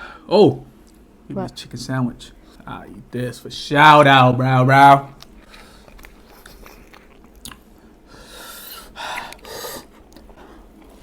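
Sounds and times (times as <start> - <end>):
person chewing fried chicken: 5.2 - 7.9, 8.7 - 11.0.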